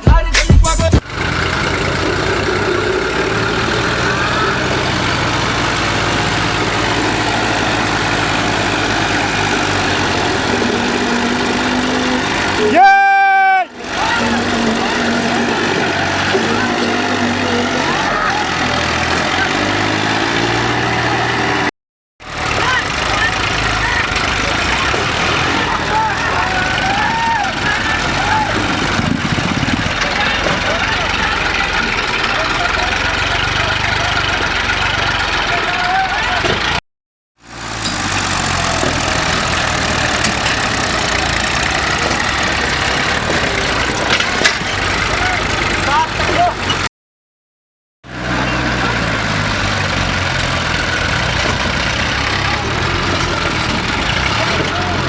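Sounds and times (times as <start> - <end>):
tractor engines under load: 0.0 - 36.8, 37.4 - 46.9, 48.1 - 55.0
people shouting: 2.4 - 19.7, 22.6 - 29.0, 35.5 - 36.6.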